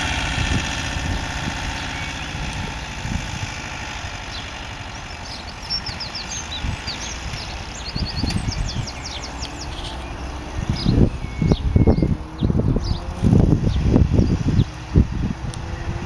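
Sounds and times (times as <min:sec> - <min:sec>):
engine idling with low rumble: 0:00.0 - 0:16.0
bird chirping: 0:01.7 - 0:02.5, 0:04.3 - 0:14.8.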